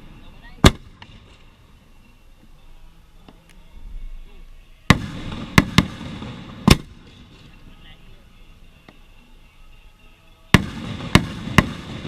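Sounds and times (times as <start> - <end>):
fireworks bangs: 4.9 - 7.8, 10.6 - 12.0.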